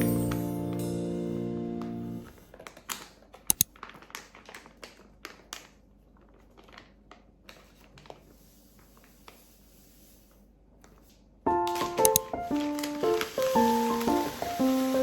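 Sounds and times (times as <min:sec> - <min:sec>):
small objects clicking and tapping: 0:02.5 - 0:05.8, 0:11.7 - 0:14.9.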